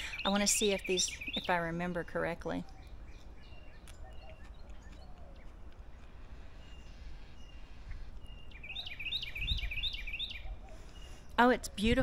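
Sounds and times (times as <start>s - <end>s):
faint bird chirps: 2.6s - 11.4s.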